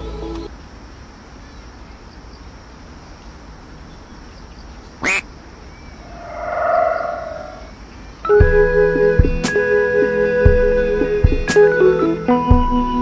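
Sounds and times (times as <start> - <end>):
nasal duck-like quack: 5.0 - 5.3
quick swish effect: 6.1 - 7.7.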